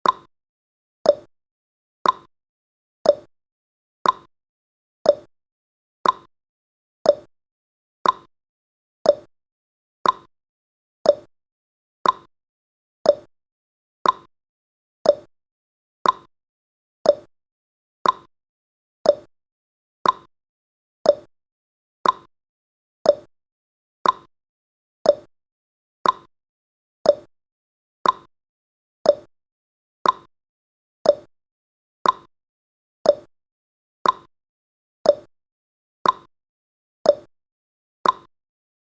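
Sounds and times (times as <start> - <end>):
countdown timer ticking: 3.1 - 3.3, 5.1 - 5.3, 7.1 - 7.3, 9.1 - 9.3, 11.1 - 11.3, 13.1 - 13.3, 15.1 - 15.3, 17.1 - 17.3, 18.0 - 18.3, 19.1 - 19.3, 20.0 - 20.3, 21.1 - 21.3, 23.1 - 23.3, 25.1 - 25.3, 26.0 - 26.3, 27.1 - 27.3, 28.0 - 28.3, 29.1 - 29.3, 30.0 - 30.3, 31.1 - 31.3, 32.0 - 32.3, 33.1 - 33.3, 34.0 - 34.3, 35.1 - 35.3, 36.0 - 36.3, 37.1 - 37.3, 38.0 - 38.3.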